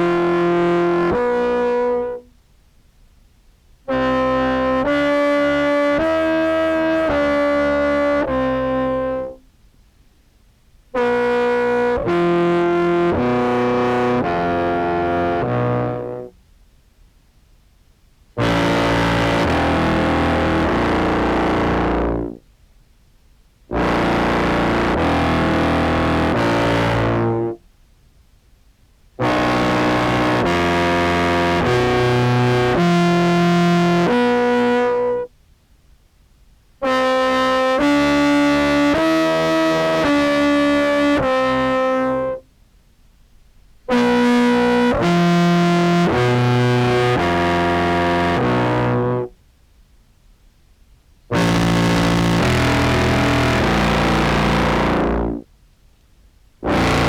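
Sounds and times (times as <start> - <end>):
distorted deep clarinet: 0.0 - 2.3, 3.9 - 9.4, 11.0 - 16.3, 18.4 - 22.4, 23.7 - 27.6, 29.2 - 35.3, 36.8 - 42.4, 43.9 - 49.3, 51.3 - 55.4, 56.6 - 57.0.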